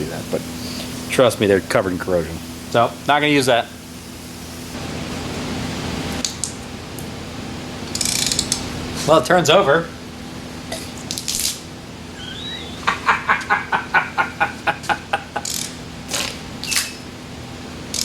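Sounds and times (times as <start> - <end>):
ratchet wrench clicking: 7.9 - 8.5
brief squeak: 12.2 - 12.9, 16.6 - 17.0.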